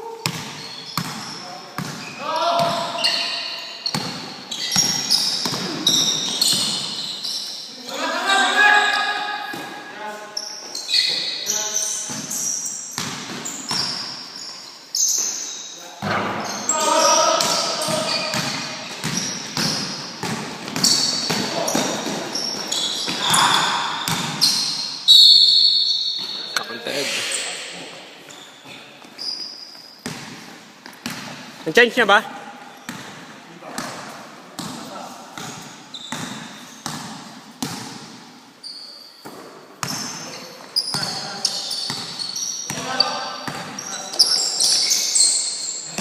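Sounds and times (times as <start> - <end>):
basketball bouncing on court: 0.2 - 3.2, 3.8 - 7.0, 12.0 - 14.0, 17.4 - 24.8, 30.0 - 31.5, 32.9 - 38.2, 39.2 - 40.3, 40.9 - 43.9
short high squeaks: 2.0 - 7.7, 10.4 - 15.8, 22.3 - 23.8, 24.4 - 27.5, 28.3 - 30.0, 38.6 - 39.2, 39.9 - 46.0.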